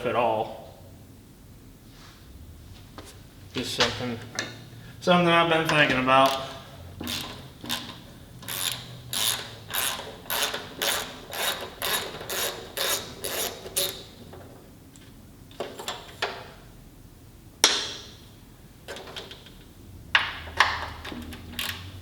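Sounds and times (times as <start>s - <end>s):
ratchet wrench on a bolt: 6.2s - 14.1s.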